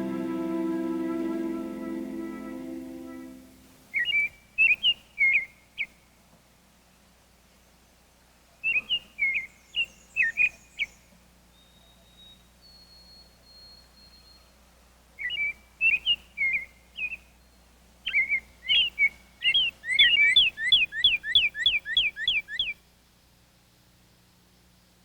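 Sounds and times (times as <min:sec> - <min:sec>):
songbird singing whistled notes: 0:00.0 - 0:05.9, 0:08.6 - 0:14.6, 0:15.2 - 0:22.8.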